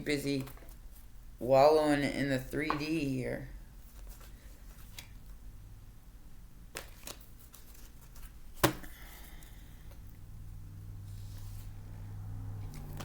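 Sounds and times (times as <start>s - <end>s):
cards being shuffled: 6.7s - 8.9s.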